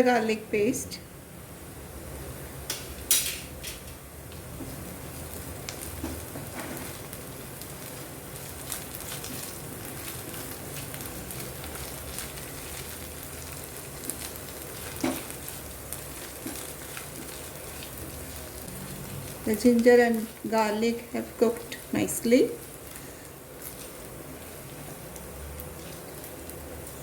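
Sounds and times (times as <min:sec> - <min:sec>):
onions frying in oil: 0:00.0 - 0:27.0.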